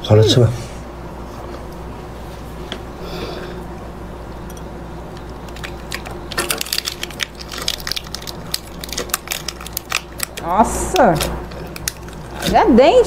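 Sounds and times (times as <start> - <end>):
low steady hum: 0.0 - 13.0
crunching shell-on seafood: 5.2 - 12.6.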